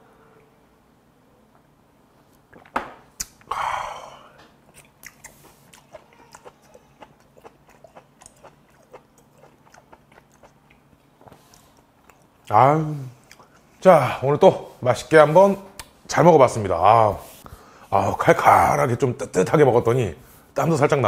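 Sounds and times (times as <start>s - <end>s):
wet chewing with closed lips: 4.6s - 12.5s, 13.2s - 13.8s.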